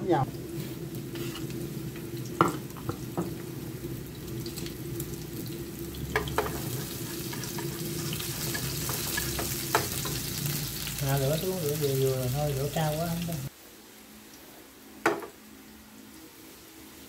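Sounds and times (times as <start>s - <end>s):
shallots sizzling in hot oil: 0.0s - 13.6s
chopsticks tapping pan: 6.1s - 10.3s.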